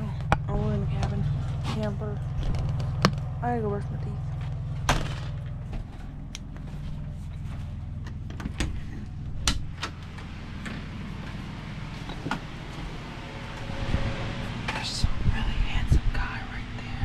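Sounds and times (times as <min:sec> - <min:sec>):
low mechanical hum: 0:00.0 - 0:17.0
sharp clicks and knocks: 0:02.4 - 0:03.3, 0:09.4 - 0:10.9.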